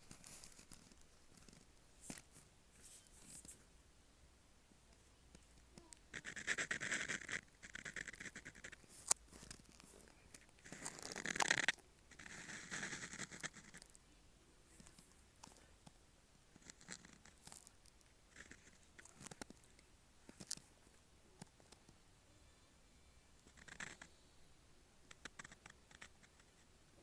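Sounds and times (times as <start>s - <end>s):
pen nib ticks: 5.8s - 9.6s, 23.4s - 24.1s, 25.1s - 26.5s
pen nib scratching paper: 5.8s - 10.0s, 10.6s - 13.9s, 16.5s - 17.7s, 18.3s - 19.6s, 23.4s - 24.1s, 25.1s - 26.6s.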